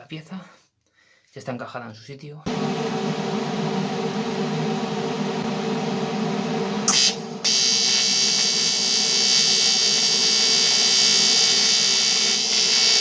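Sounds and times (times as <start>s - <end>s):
welding machine hum: 2.5s - 13.0s
welding arc buzzing hiss: 6.8s - 13.0s.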